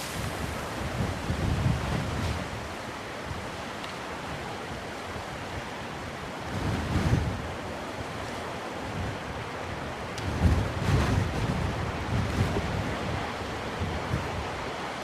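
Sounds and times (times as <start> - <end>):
wind buffeting microphone: 0.0 - 3.7, 4.3 - 14.9
surf washing onto shore: 0.0 - 15.0.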